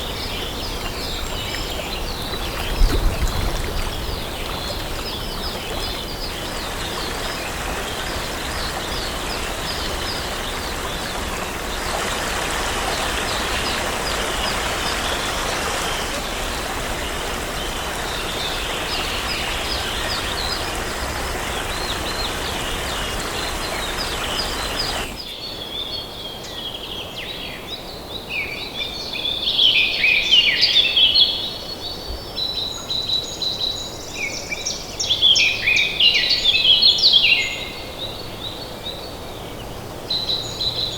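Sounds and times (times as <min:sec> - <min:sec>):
small birds chirping: 0:00.0 - 0:15.4
flowing water: 0:00.0 - 0:25.3, 0:31.9 - 0:40.9
songbird song: 0:00.0 - 0:40.9.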